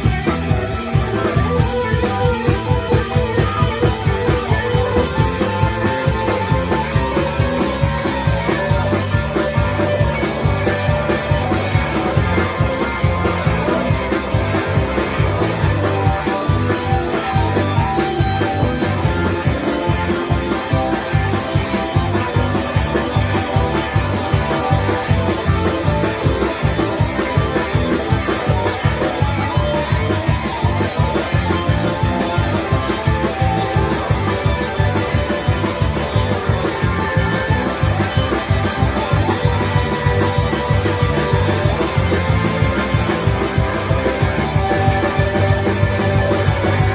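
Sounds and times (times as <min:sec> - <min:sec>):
band playing rock music: 0:00.0 - 0:46.9
guitar: 0:00.0 - 0:46.9.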